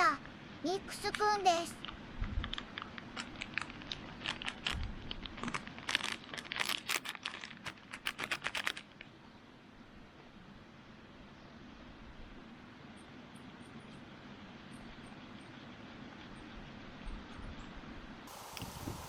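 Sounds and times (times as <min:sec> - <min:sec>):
plastic packet crinkling: 0:01.8 - 0:09.0.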